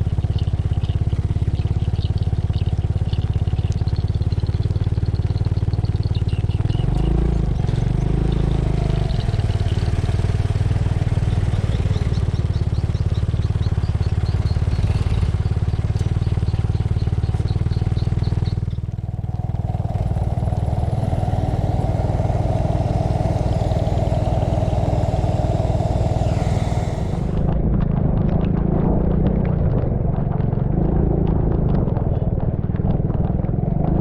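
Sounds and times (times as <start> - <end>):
motorcycle engine running: 0.0 - 34.0
small scattered ticks: 0.3 - 27.4
wind noise on microphone: 18.6 - 34.0.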